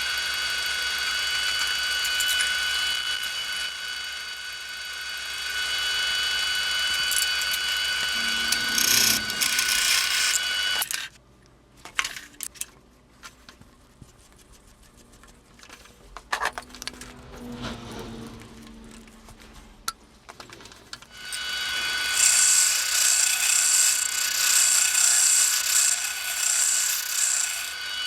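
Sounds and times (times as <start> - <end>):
power tool whining: 0.0 - 11.1, 21.1 - 28.0.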